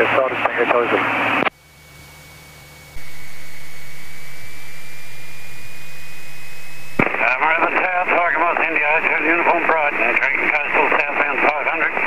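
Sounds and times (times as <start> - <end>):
faint high whine: 1.4 - 10.8
radio channel hiss: 2.9 - 12.0.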